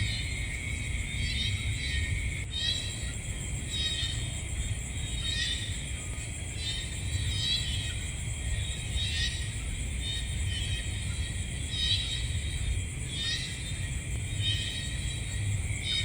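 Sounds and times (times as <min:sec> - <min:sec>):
high-pitched insect chorus: 0:00.0 - 0:16.0
louder insect call: 0:00.0 - 0:16.0.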